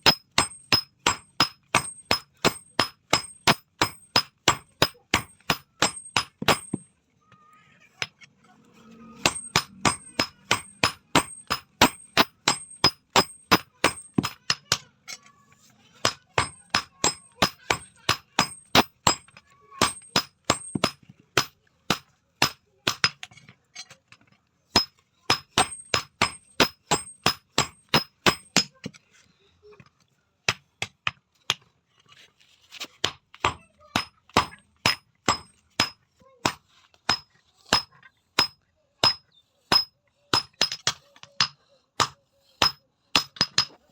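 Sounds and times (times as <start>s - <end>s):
hammer striking steel: 0.0s - 6.8s, 9.2s - 14.8s, 16.0s - 23.2s, 24.8s - 28.7s, 33.5s - 43.8s.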